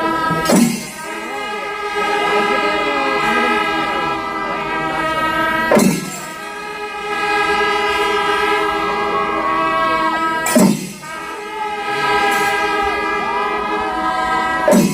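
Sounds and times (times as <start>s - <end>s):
wind instruments holding horn notes: 0.0s - 14.9s
sharp loud drum hit: 0.4s - 1.2s, 5.7s - 6.4s, 10.5s - 11.2s.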